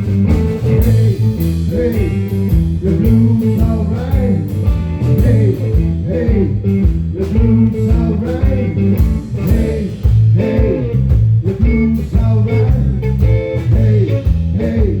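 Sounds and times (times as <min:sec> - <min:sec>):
bent lead guitar notes: 0:00.0 - 0:14.5
electric blues band playing: 0:00.0 - 0:15.0.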